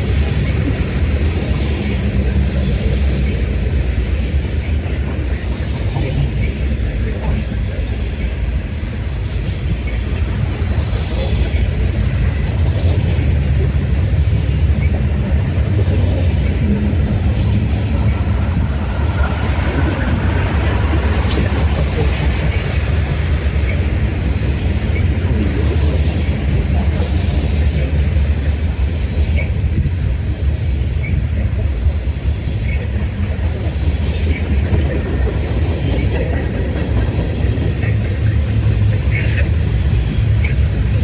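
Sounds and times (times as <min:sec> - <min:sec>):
steel wheels rumbling on rail: 0:00.0 - 0:41.0.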